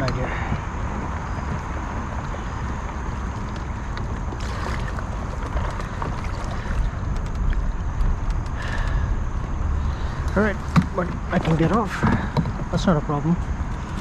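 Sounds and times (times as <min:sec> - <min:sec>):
wind rumbling on microphone: 0:00.0 - 0:14.0
river current rushing: 0:02.5 - 0:12.5.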